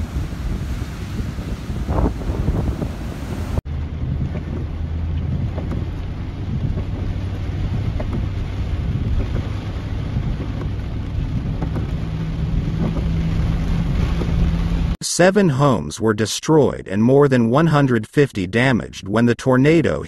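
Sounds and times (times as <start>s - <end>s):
engine and road noise drone: 0.0s - 15.0s
heavy rain beating on car: 0.0s - 15.0s
storm wind: 0.0s - 15.0s.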